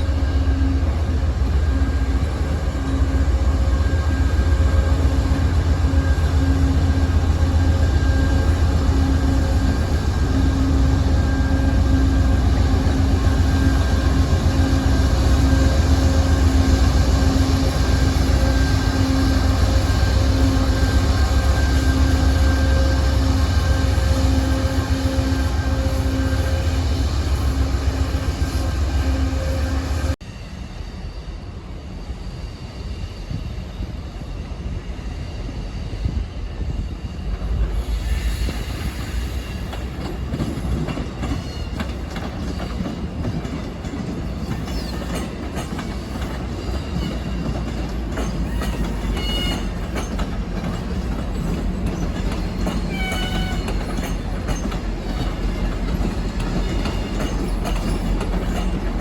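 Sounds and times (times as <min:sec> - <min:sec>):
railcars rumbling past: 0:00.0 - 0:59.0
wheels clicking over rail joints: 0:39.7 - 0:59.0
wheel squeals: 0:44.3 - 0:59.0.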